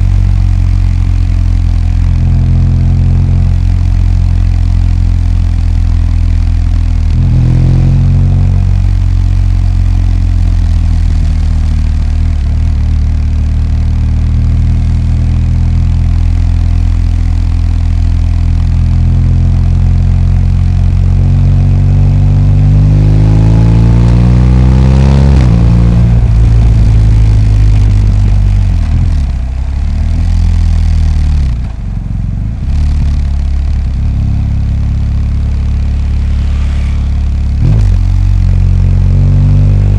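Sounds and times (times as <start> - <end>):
motorcycle engine revving: 32.6 - 39.9.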